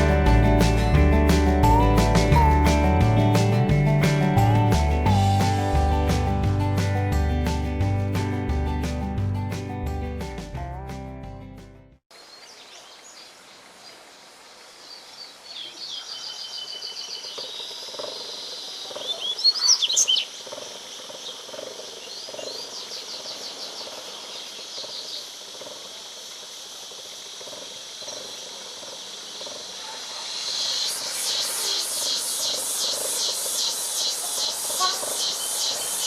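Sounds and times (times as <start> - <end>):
steady high background hiss: 12.1 - 18.8, 20.0 - 36.0
bird singing high twittering trills: 15.6 - 20.4, 30.6 - 36.0.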